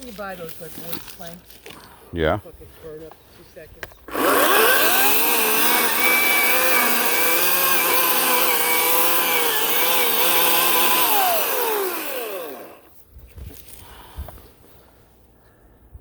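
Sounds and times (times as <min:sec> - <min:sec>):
electric chainsaw whining: 0:04.1 - 0:12.9.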